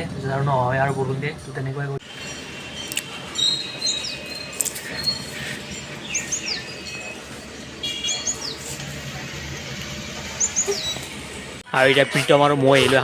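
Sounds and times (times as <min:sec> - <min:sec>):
bird whistling chirps: 0:02.2 - 0:07.2, 0:10.4 - 0:11.1.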